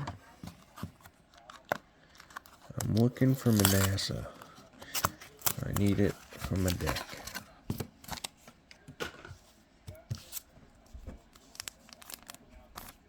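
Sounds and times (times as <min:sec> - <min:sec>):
cards rustling and clicking: 0:00.6 - 0:10.5.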